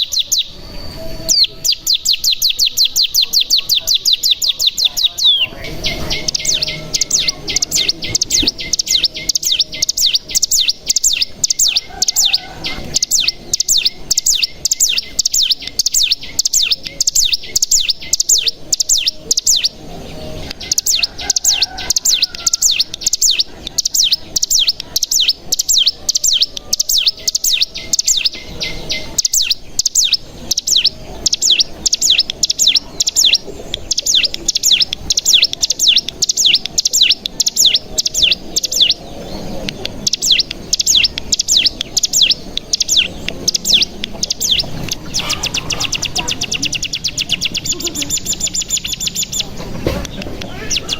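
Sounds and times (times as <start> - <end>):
bird singing rapid high notes: 0.0 - 50.9.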